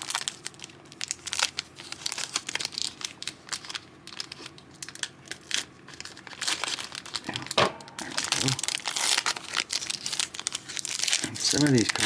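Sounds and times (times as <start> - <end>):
card pack wrapper crinkling: 0.0 - 12.0.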